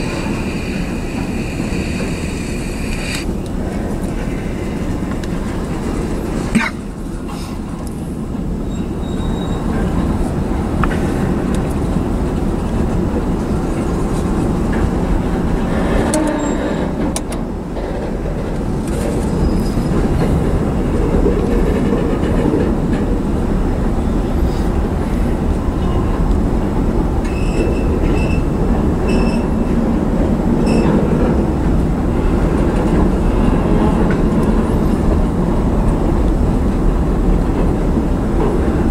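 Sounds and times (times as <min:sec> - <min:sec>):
steel wheels rolling on rails: 0:00.0 - 0:38.9
brief high squeals: 0:08.7 - 0:09.7.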